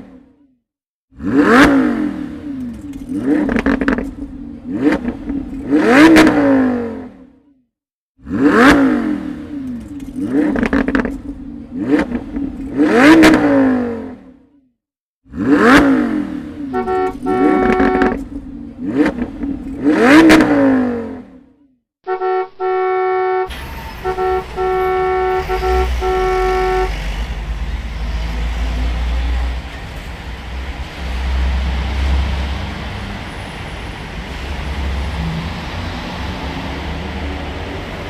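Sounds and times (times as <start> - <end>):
engine rumble: 1.2 - 7.2, 23.4 - 38.0
short car horn honks: 16.7 - 18.2, 22.1 - 27.0.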